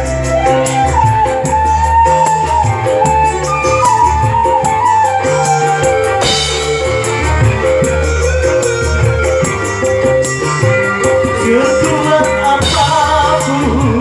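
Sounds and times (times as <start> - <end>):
bass: 0.0 - 14.0
flute melody: 0.0 - 14.0
steady drum beat: 0.0 - 14.0
cymbal crash: 5.8 - 11.3.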